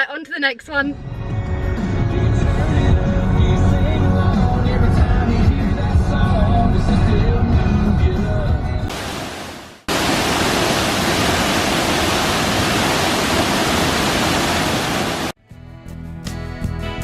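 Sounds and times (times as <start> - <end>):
background music: 0.4 - 8.9
waterfall roaring: 8.9 - 15.4.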